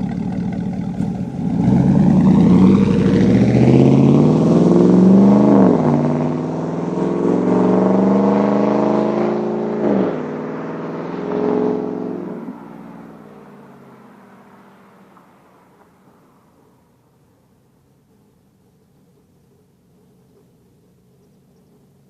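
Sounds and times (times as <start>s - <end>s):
truck engine accelerating: 0.0s - 15.2s.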